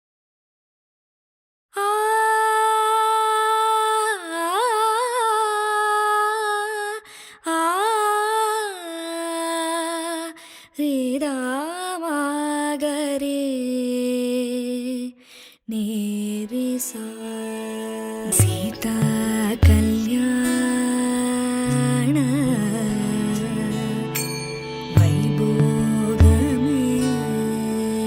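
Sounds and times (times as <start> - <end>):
person humming a melody: 18.4 - 20.7, 24.9 - 28.0.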